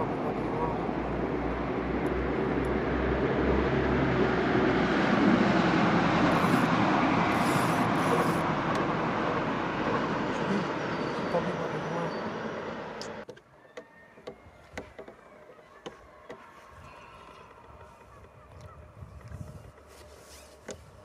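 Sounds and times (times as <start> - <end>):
passing train rushing: 0.0 - 13.2.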